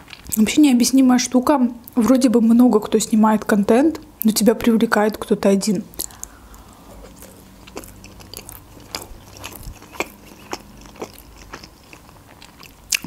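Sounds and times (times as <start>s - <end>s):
mouth clicks: 5.9s - 11.6s
woman chewing food: 6.0s - 13.0s.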